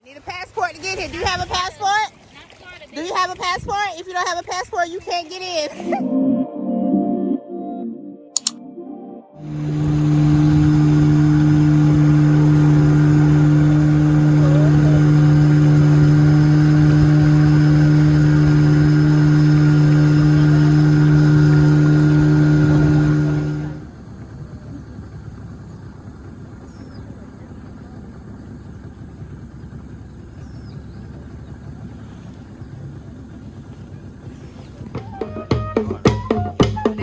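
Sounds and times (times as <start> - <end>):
mechanical drone with hiss: 9.4 - 23.9.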